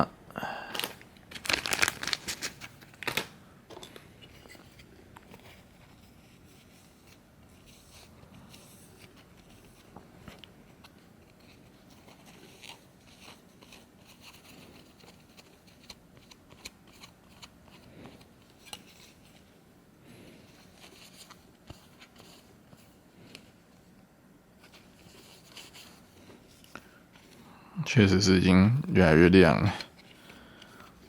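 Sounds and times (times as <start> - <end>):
cloth rubbing plastic: 0.8 - 3.3.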